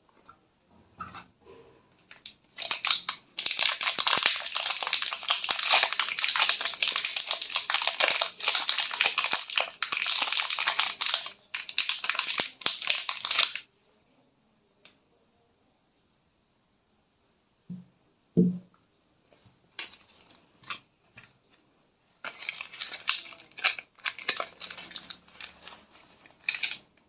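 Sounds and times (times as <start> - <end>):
soap wrappers crinkling: 2.0 - 13.7, 19.8 - 21.4, 22.2 - 27.0.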